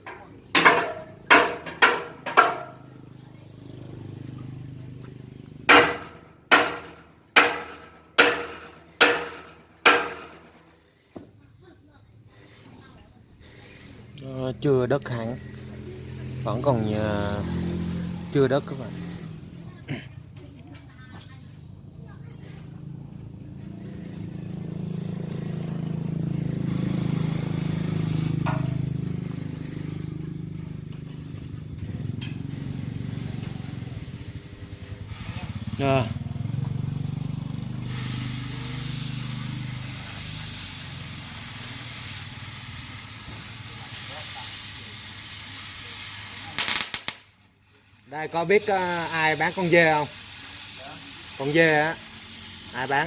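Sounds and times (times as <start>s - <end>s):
hammer striking steel: 0.0s - 3.0s, 5.7s - 10.7s, 28.2s - 29.0s
vehicle engine passing by: 2.1s - 6.4s, 13.4s - 43.6s.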